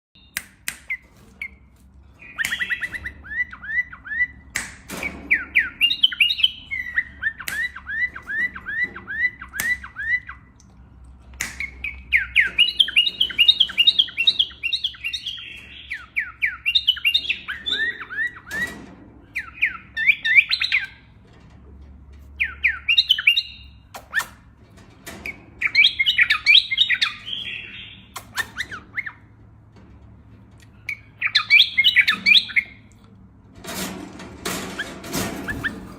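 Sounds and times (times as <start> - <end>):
pet bird singing: 0.2 - 10.6, 11.4 - 21.1, 22.4 - 24.4, 25.3 - 29.3, 30.8 - 32.9.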